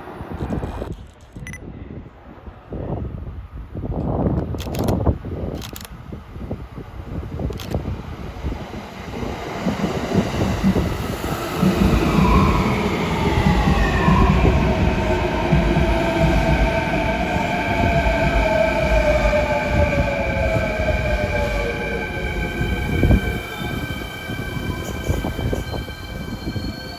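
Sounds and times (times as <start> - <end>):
train wheels rumbling and knocking: 7.2 - 26.9.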